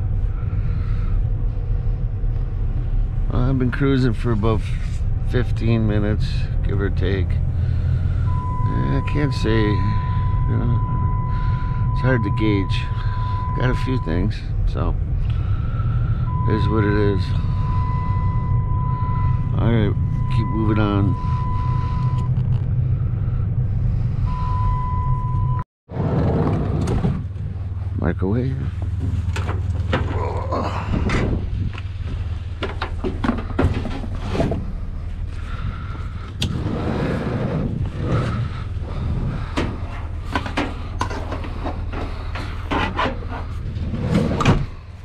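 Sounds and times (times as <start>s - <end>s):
vehicle engine and road rumble: 0.0s - 45.0s
high-pitched warning tone: 8.2s - 14.4s, 16.2s - 22.4s
knocks and clunks: 28.8s - 34.8s, 37.8s - 44.9s.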